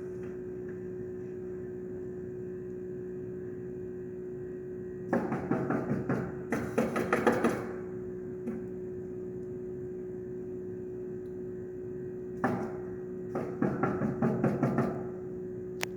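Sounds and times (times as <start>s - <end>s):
hammers nailing shingles: 5.1s - 7.8s, 12.4s - 15.1s.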